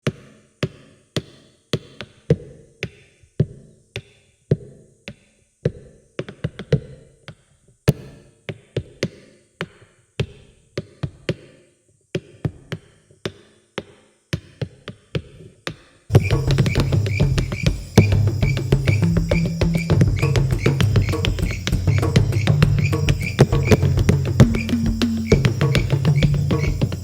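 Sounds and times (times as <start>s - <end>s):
sharp percussive taps: 16.1s - 27.0s.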